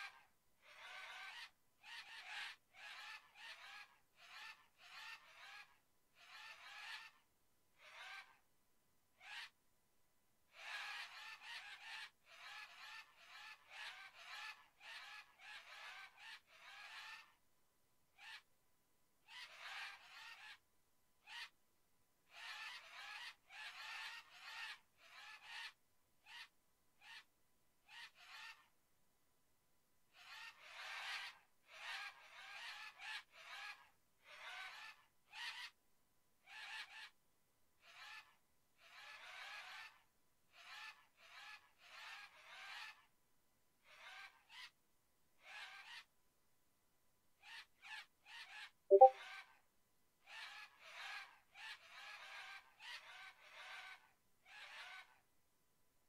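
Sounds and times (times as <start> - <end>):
bird calls: 48.9 - 49.1.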